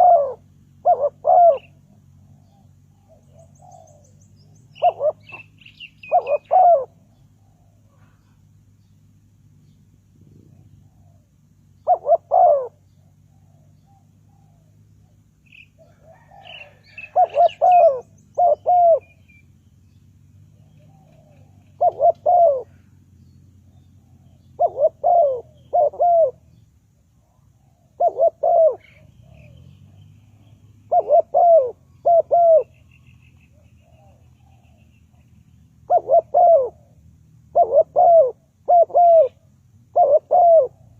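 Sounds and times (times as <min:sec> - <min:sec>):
dove cooing: 0:00.0 - 0:08.5, 0:10.2 - 0:19.4, 0:20.5 - 0:23.0, 0:23.7 - 0:26.6, 0:27.2 - 0:40.9
faint bird chirps: 0:00.0 - 0:40.9.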